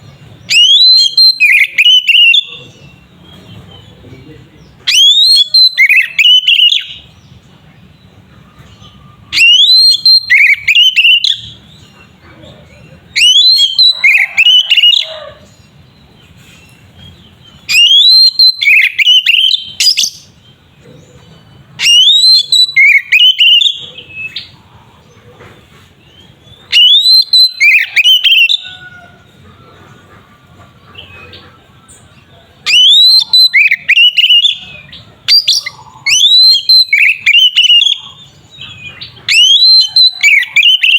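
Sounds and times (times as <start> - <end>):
bird singing whistled phrases: 0.4 - 3.0, 4.8 - 7.0, 8.9 - 11.6, 13.1 - 15.2, 17.7 - 20.4, 21.8 - 24.5, 26.7 - 28.8, 32.7 - 40.9.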